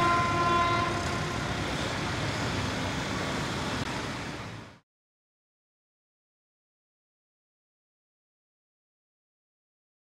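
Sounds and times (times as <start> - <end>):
diesel train running: 0.0 - 4.8
road traffic: 0.0 - 4.8.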